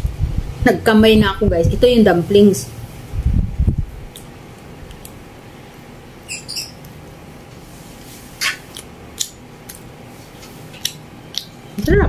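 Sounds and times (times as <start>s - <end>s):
low room hum: 0.0s - 12.0s
wet mouth smacks while chewing: 4.1s - 5.2s, 8.4s - 9.8s, 10.4s - 11.6s.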